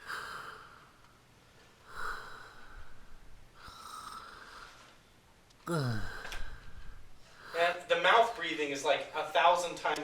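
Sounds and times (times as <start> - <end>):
person breathing heavily: 0.0 - 1.0, 1.6 - 4.9, 5.6 - 9.3.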